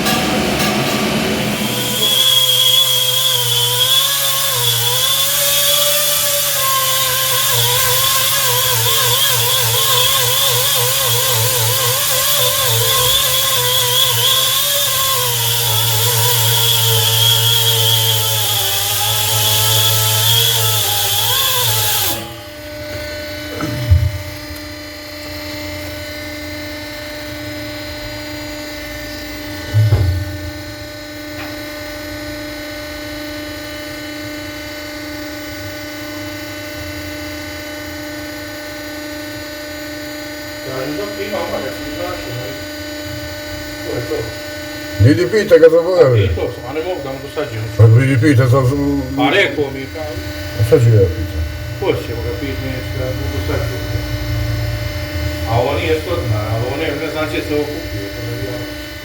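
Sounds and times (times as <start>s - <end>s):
low hum: 0.0s - 3.2s, 22.4s - 25.2s, 28.9s - 31.3s, 48.3s - 58.0s
power tool running: 0.0s - 59.0s.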